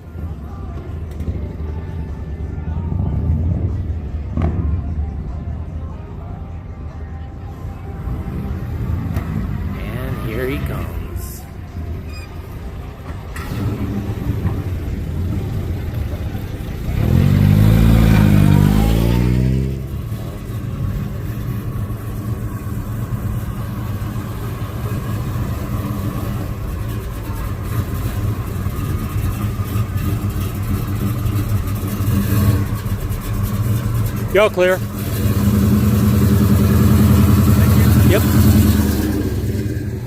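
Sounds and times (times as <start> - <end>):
car engines running: 0.0 - 40.0
car revving and accelerating: 13.4 - 40.0.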